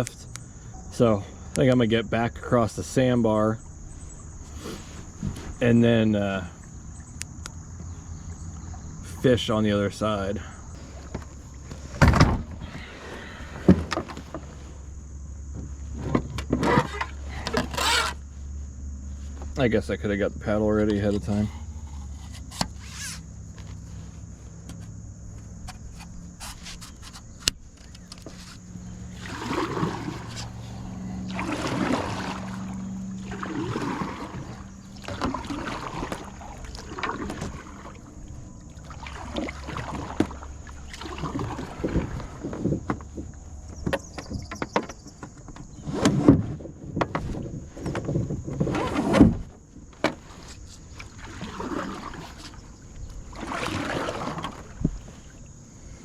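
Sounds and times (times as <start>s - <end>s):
low hum: 0.0s - 26.4s, 27.2s - 43.8s
paddle splashing in water: 28.2s - 45.2s, 45.8s - 56.0s.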